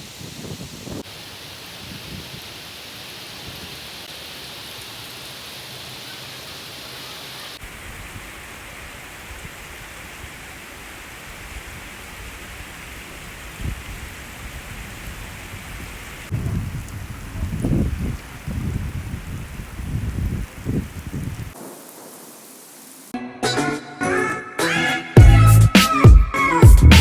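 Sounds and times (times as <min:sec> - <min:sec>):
wind rumble on microphone: 0:00.0 - 0:01.1, 0:01.8 - 0:02.5, 0:11.2 - 0:21.6
heavy rain on hard surfaces: 0:00.0 - 0:23.2.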